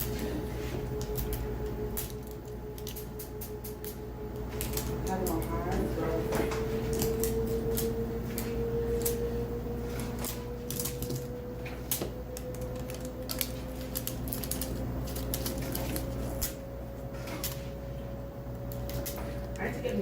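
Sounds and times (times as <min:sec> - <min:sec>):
plastic wrapping crackling: 0:00.0 - 0:17.8.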